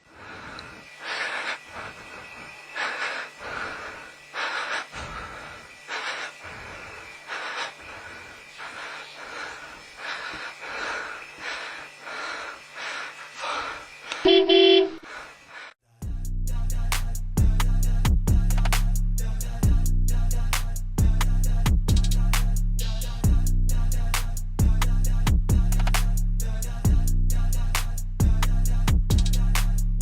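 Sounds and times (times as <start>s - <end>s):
short loud honk: 14.3s - 15.0s.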